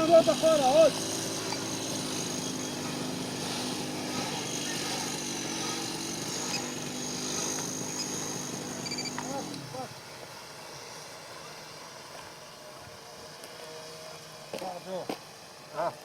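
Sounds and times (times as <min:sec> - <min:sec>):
small propeller motors humming: 0:00.0 - 0:16.0.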